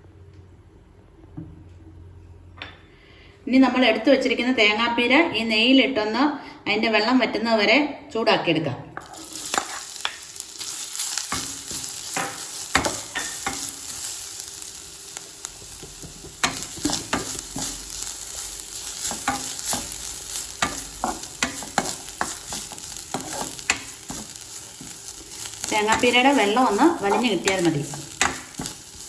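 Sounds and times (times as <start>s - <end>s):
spatula scraping and knocking pan: 9.0s - 14.1s, 15.6s - 29.0s
coconut sizzling in hot oil: 9.0s - 29.0s.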